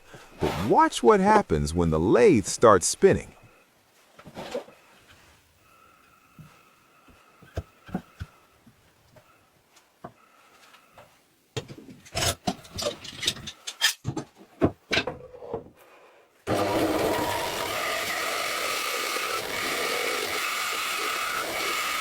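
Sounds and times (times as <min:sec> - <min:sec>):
wood lathe cutting wood: 0:16.5 - 0:22.0.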